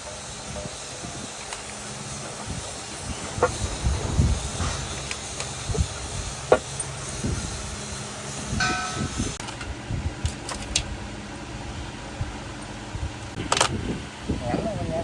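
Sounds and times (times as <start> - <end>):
steady low hum: 0.0 - 15.0
metal piece ringing: 8.5 - 9.4.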